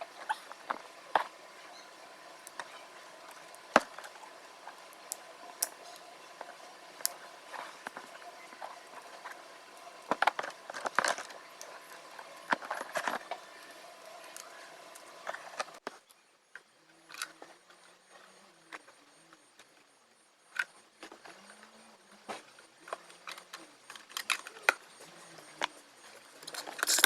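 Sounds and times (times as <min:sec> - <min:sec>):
clinks of hand tools and metal parts: 0:26.5 - 0:27.0.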